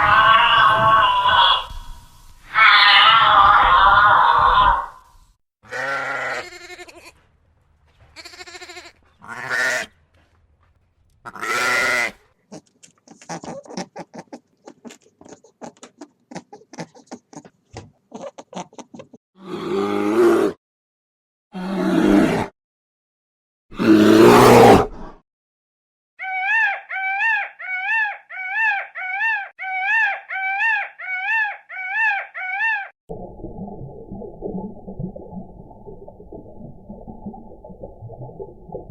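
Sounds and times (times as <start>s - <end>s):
goat bleating: 5.7s - 7.3s, 8.1s - 9.9s, 11.3s - 17.4s.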